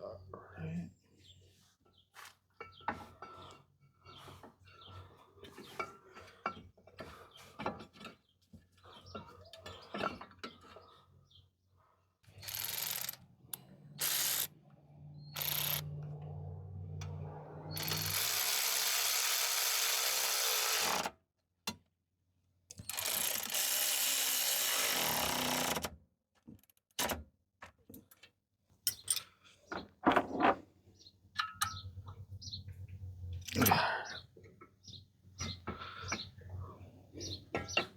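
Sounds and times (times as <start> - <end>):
power tool whirring: 12.3 - 14.5, 15.2 - 16.2, 17.5 - 21.1, 22.8 - 25.9
ratchet clicks: 12.4 - 14.5, 15.2 - 16.0, 17.0 - 21.1, 22.7 - 25.9
metal clinks: 31.4 - 32.0.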